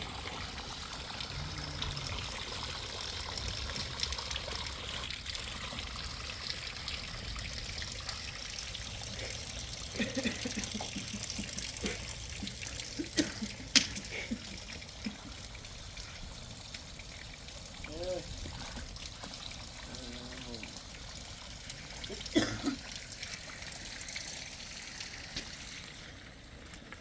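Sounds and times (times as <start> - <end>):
rainwater trickling and pouring: 0.0 - 27.0
low voice-like sounds: 1.3 - 2.4, 19.9 - 20.7.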